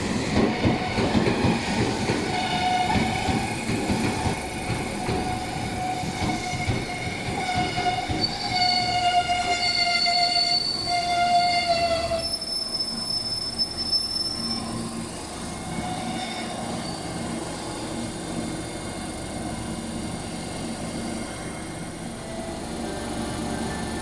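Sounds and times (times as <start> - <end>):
train running rumble: 0.0 - 10.0
train wheels squealing on rails: 0.0 - 18.4, 19.7 - 24.0
train horn: 2.3 - 3.2, 6.0 - 12.4.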